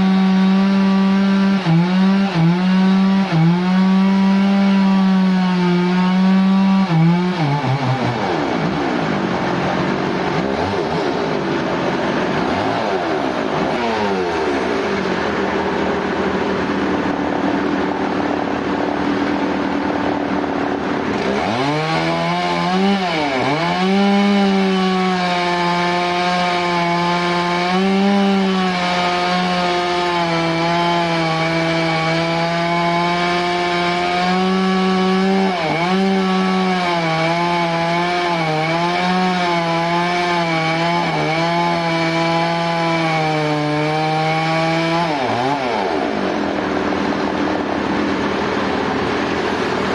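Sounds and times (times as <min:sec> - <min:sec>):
power saw cutting log: 0:00.0 - 0:49.9.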